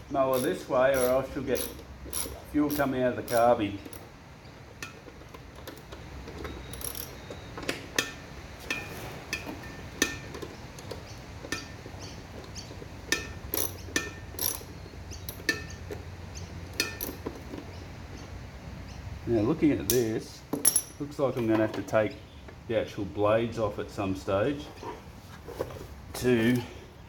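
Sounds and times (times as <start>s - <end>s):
metallic clicks of hand tools: 0.3s - 4.0s.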